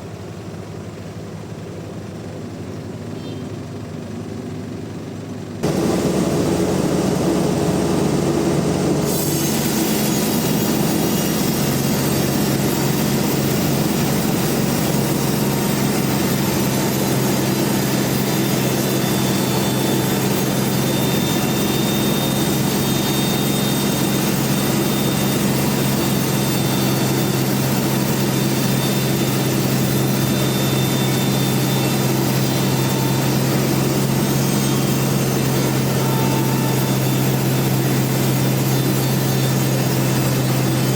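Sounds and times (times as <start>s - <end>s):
sawmill machine hum: 0.0s - 40.9s
saw blade hissing through log: 9.0s - 40.9s.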